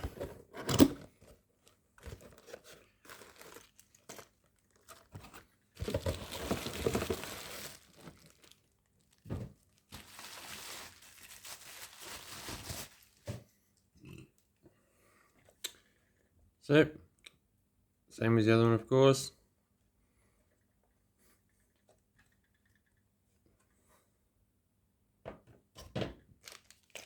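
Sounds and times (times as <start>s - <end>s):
plastic packaging crinkling: 1.6s - 13.3s, 26.4s - 27.0s.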